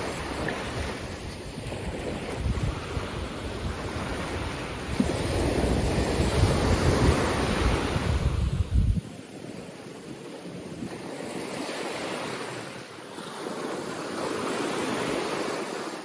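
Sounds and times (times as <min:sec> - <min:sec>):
wind buffeting microphone: 0:00.0 - 0:09.6
ocean surf on beach: 0:00.0 - 0:16.0.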